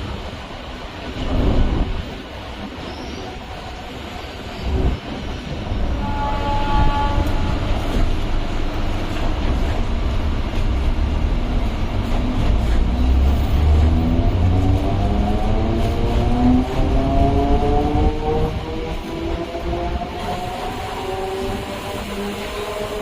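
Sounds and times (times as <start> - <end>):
electric train rumbling: 0.0 - 23.0
train horn: 5.8 - 8.1.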